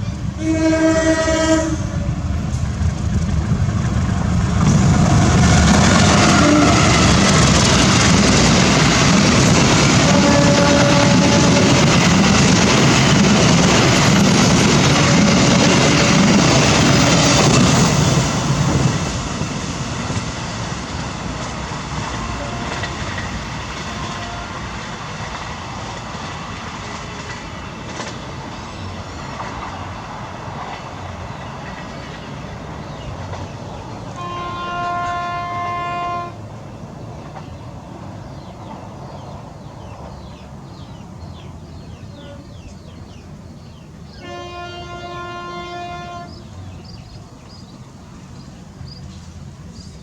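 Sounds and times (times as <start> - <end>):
train passing on rails: 0.0 - 50.0
train horn blast: 0.4 - 2.2, 6.0 - 7.4, 9.9 - 12.1, 14.8 - 17.6, 22.4 - 23.3, 23.9 - 24.8, 34.1 - 36.4, 42.1 - 42.8, 44.2 - 46.6.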